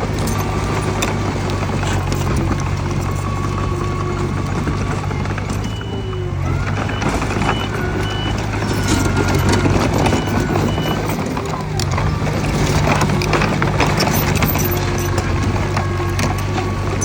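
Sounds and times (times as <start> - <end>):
bulldozer diesel engine running: 0.0 - 17.0
steel tracks clanking and squealing: 0.0 - 17.0.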